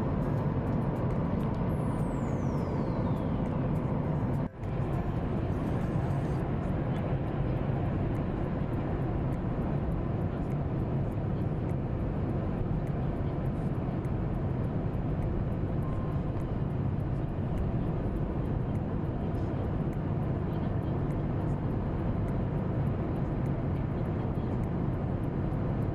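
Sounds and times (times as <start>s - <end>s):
jet engine rumbling hiss: 0.0s - 25.9s.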